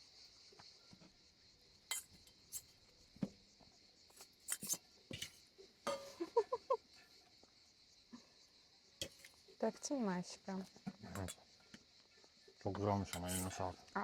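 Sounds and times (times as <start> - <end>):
insects chirring: 0.0 - 14.0
dishes and cutlery clinking: 1.9 - 2.6, 4.5 - 6.2, 11.1 - 11.4, 13.1 - 13.6.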